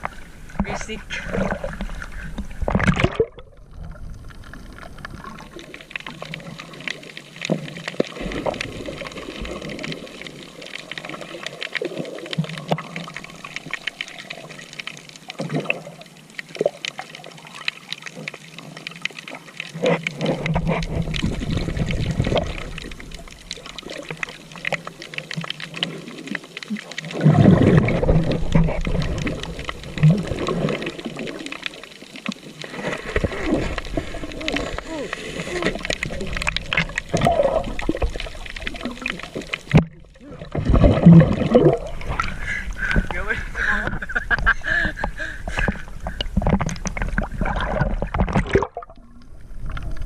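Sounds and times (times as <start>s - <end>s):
sea water sloshing and splashing: 0.0s - 50.0s
water bubbling: 0.0s - 50.0s.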